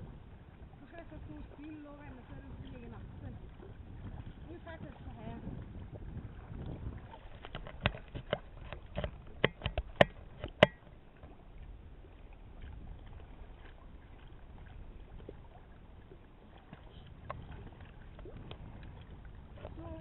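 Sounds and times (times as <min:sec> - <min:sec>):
sharp knocks: 0:07.6 - 0:10.9
faint low rumble: 0:10.9 - 0:20.0.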